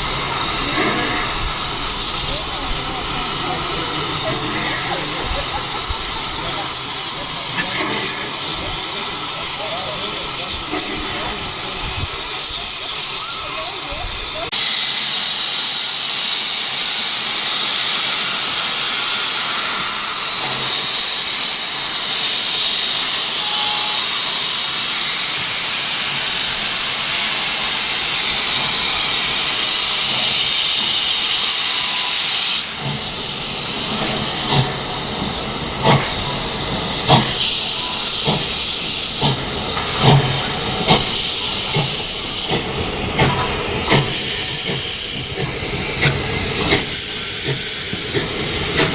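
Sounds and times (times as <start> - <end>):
steam locomotive hissing: 0.0 - 48.9.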